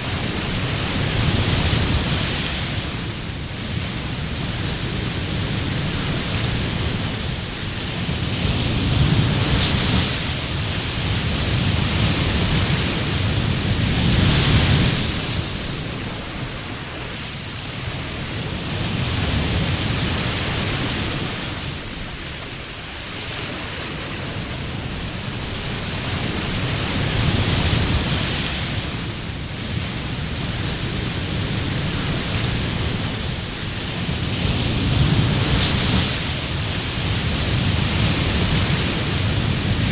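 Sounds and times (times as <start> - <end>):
waves breaking on beach: 0.0 - 39.9.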